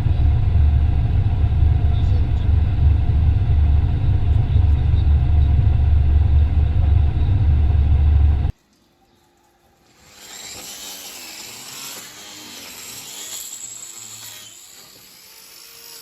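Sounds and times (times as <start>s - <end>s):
heavy farm machinery rumbling: 0.0s - 8.5s
faint steady whine: 0.0s - 10.0s.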